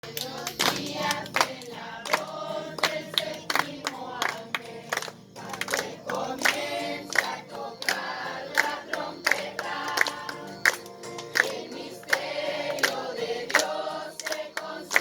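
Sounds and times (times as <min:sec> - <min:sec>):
group of voices singing: 0:00.0 - 0:15.0
hands clapping: 0:00.0 - 0:15.0.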